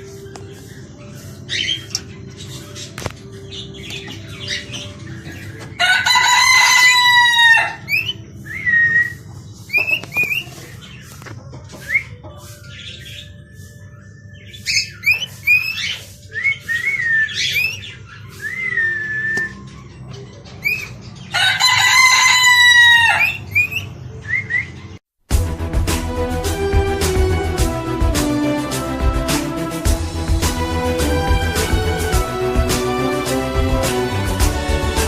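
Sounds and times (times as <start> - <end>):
small birds chirping: 0.0 - 25.0
rooster crowing: 5.8 - 7.9, 21.3 - 23.4.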